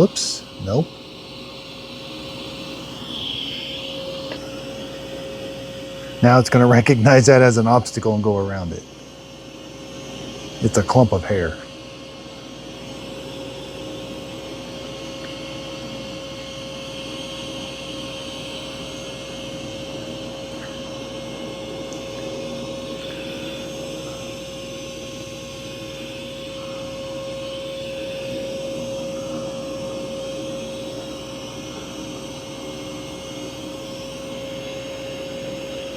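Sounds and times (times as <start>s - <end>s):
robot vacuum whirring: 0.0s - 8.8s, 18.0s - 35.9s.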